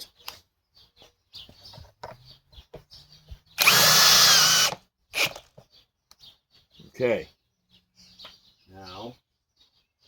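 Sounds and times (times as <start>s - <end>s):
drill boring into wood: 3.6s - 5.4s.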